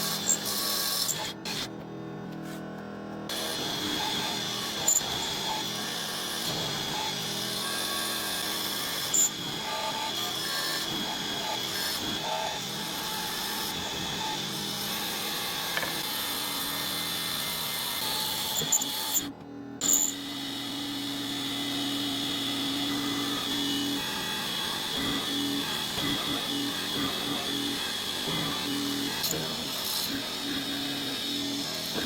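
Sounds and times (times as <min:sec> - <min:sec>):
power tool whining on wood: 0:00.0 - 0:32.0.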